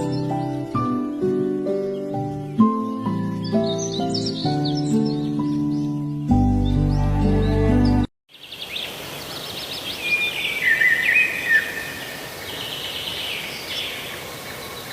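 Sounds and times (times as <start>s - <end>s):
music: 0.0s - 8.1s
birds chirping and trilling: 0.0s - 14.9s
steady background hiss: 8.3s - 14.9s.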